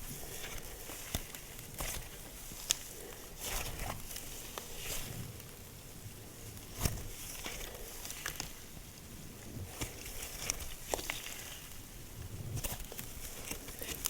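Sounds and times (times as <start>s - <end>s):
slime squelching: 9.6s - 11.7s.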